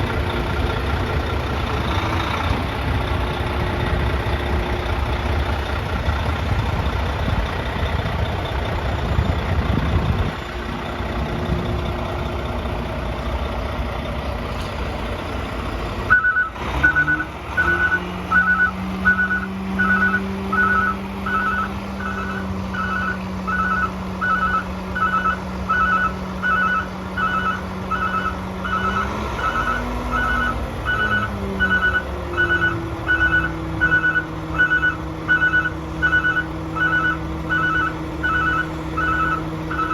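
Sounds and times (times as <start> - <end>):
diesel truck engine running: 0.0 - 39.9
backup alarm beeping: 16.1 - 39.9.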